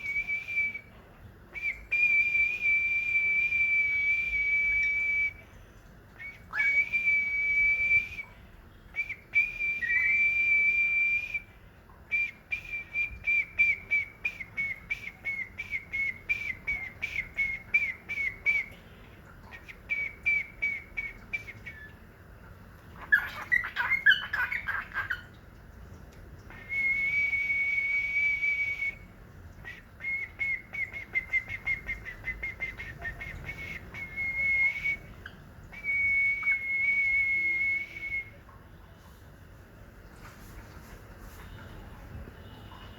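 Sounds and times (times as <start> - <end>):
bird whistling: 6.2 - 8.2, 9.0 - 11.4, 23.0 - 25.3, 29.6 - 38.4.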